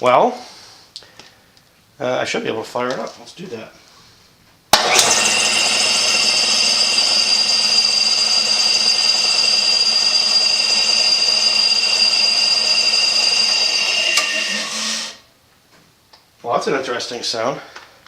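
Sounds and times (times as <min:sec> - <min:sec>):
air compressor running: 0:04.7 - 0:15.2
high whistle: 0:04.8 - 0:15.3.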